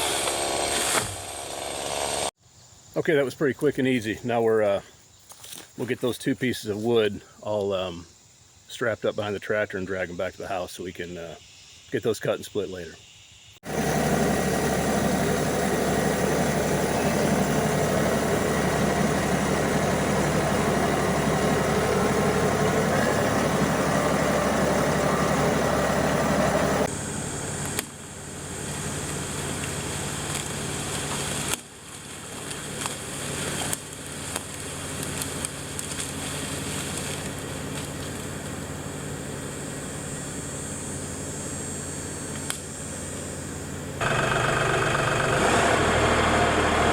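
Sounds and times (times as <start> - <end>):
diesel tractor engine running: 13.6 - 46.9.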